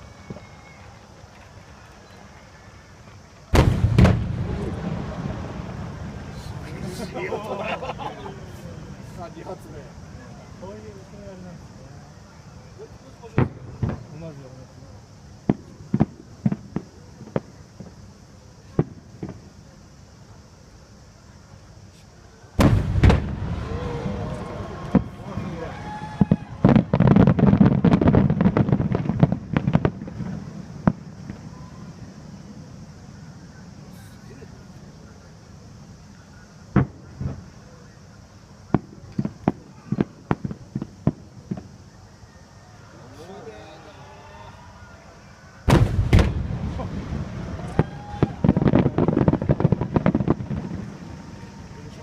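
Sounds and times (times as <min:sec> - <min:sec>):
fireworks cracking and banging: 0:00.0 - 0:11.0, 0:12.9 - 0:14.6, 0:15.4 - 0:19.6, 0:22.6 - 0:31.6, 0:36.7 - 0:37.6, 0:38.7 - 0:41.8, 0:45.6 - 0:52.0.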